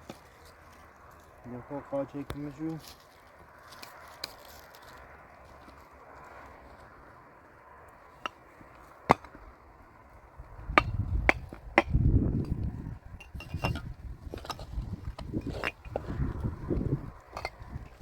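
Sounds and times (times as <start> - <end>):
scraping: 13.2 - 18.0.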